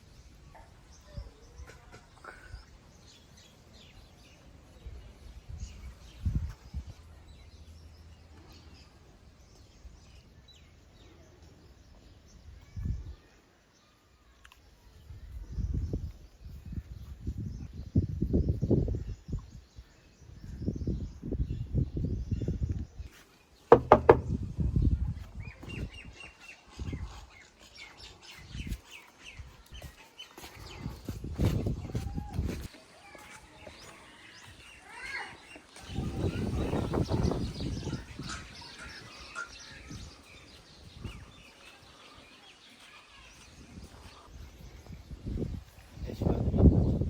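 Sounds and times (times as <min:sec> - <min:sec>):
small birds chirping: 0:00.0 - 0:47.0
low thump: 0:23.7 - 0:24.4
sharp knocks: 0:23.7 - 0:24.4.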